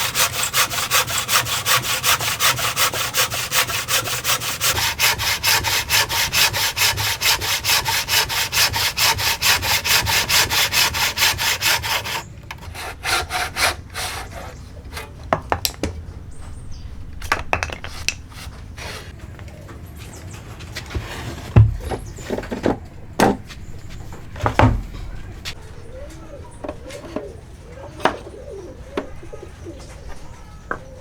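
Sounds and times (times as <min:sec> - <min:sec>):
hand saw cutting wood: 0:00.0 - 0:15.2, 0:18.3 - 0:19.2.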